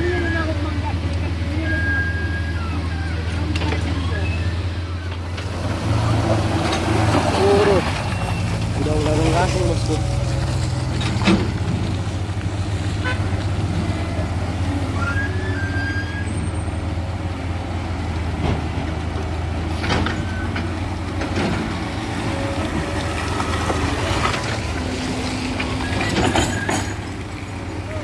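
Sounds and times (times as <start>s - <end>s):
heavy diesel engine running: 0.0s - 28.0s
faint short knocks and squeaks: 25.6s - 27.1s.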